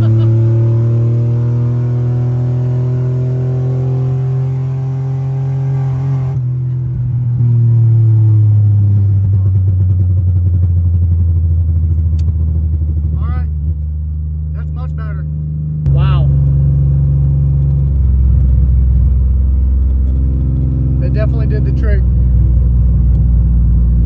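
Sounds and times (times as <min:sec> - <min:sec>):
pickup engine revving: 0:00.0 - 0:06.4.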